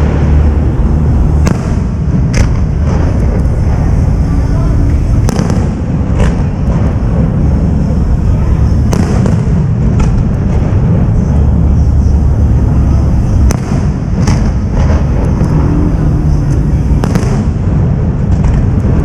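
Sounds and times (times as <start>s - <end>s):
firework shells bursting: 0.0s - 11.2s, 16.5s - 19.0s
firework sharp crack: 0.0s - 12.5s, 13.1s - 19.0s.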